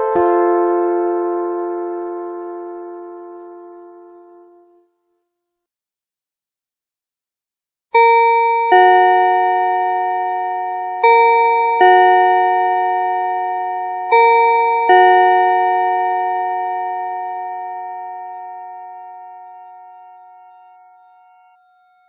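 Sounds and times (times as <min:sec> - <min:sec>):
two-tone school bell chime: 0:00.0 - 0:04.8, 0:08.0 - 0:22.0.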